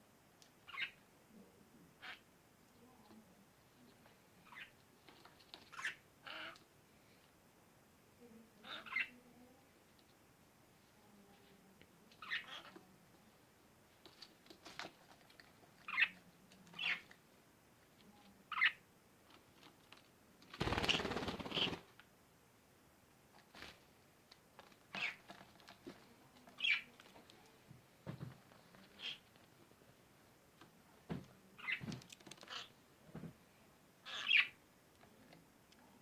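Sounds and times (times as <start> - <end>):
parrots chirping: 0.7 - 1.0, 5.7 - 6.6, 8.6 - 9.2, 12.2 - 12.8, 15.8 - 16.2, 16.8 - 17.0, 18.5 - 18.8, 26.6 - 26.9, 34.0 - 34.6.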